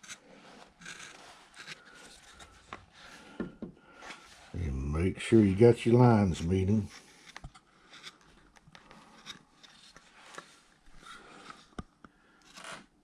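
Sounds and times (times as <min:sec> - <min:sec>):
carving tool scraping wood: 0:00.0 - 0:03.4, 0:06.8 - 0:11.8, 0:12.4 - 0:12.9.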